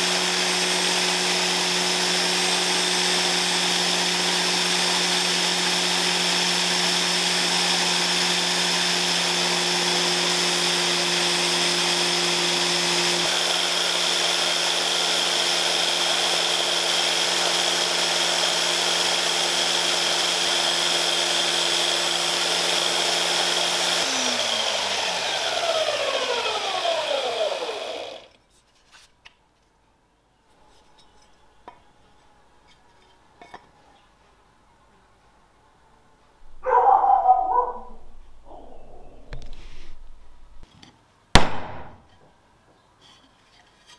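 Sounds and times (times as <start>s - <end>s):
power tool motor running: 0.0s - 28.4s.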